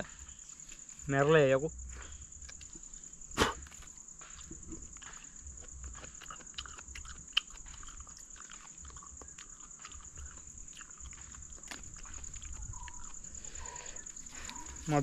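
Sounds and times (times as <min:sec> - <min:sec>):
high-pitched insect drone: 0:00.0 - 0:15.0
small ticks: 0:02.4 - 0:03.0, 0:03.7 - 0:14.8
wet chewing and lip-smacking: 0:03.7 - 0:14.8.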